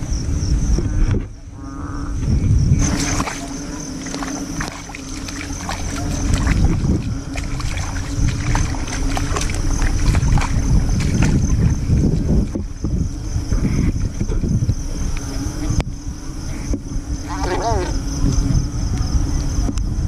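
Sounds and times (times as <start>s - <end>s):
wind rumble on microphone: 0.0s - 20.0s
footsteps sloshing through water: 2.8s - 15.7s
microphone handling noise: 5.6s - 19.8s.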